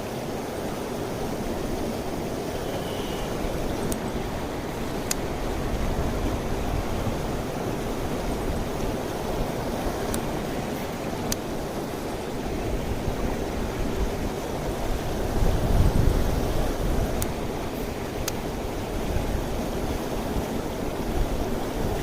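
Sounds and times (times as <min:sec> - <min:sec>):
stream rushing over rocks: 0:00.0 - 0:22.0
faint clicks: 0:03.8 - 0:04.0, 0:05.0 - 0:05.2.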